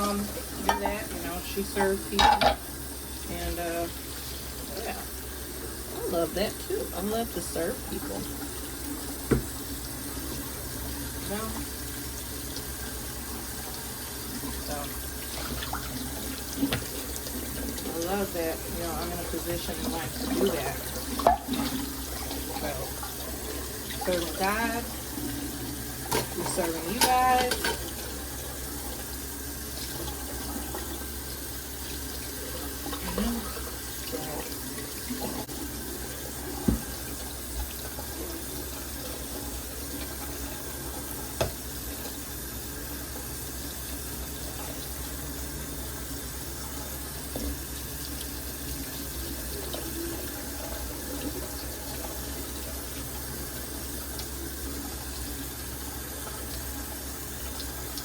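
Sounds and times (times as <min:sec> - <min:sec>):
tap water running into sink: 0:00.0 - 0:58.0
dishes clinking: 0:00.6 - 0:01.2, 0:01.8 - 0:02.7, 0:26.1 - 0:28.0.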